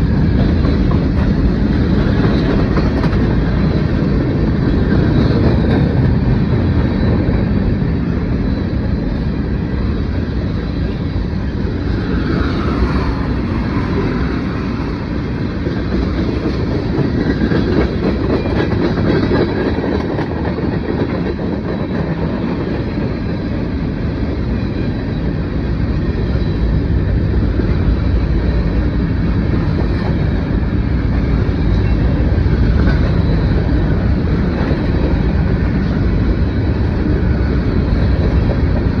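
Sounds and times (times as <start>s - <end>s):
freight train rumbling past: 0.0s - 39.0s.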